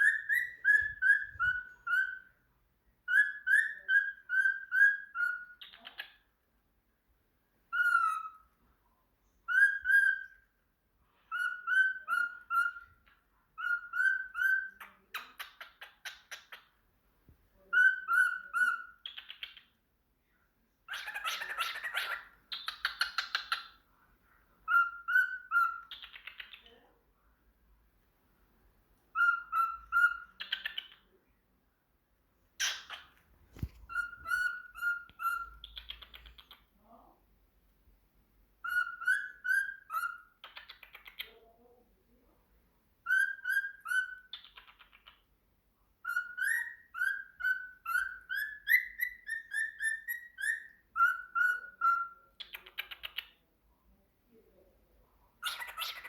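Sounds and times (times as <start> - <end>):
budgie chirping: 32.6 - 36.6.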